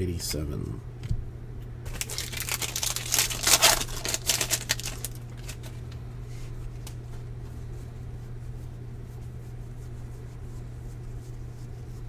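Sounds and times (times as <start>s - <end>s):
low steady hum: 0.0s - 12.0s
plastic wrapper crinkling and tearing: 1.9s - 6.0s
cards being handled: 1.9s - 7.2s.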